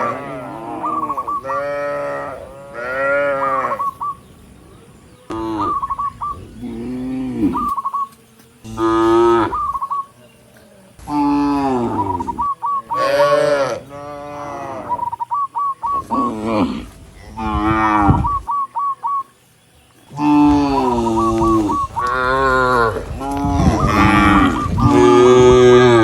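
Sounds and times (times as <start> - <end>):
cattle mooing: 0.0 - 3.8, 8.6 - 9.6, 13.0 - 15.0, 16.1 - 18.4, 20.1 - 26.0
high chirping notes: 5.3 - 10.2, 11.1 - 13.3, 14.8 - 16.4, 17.3 - 26.0.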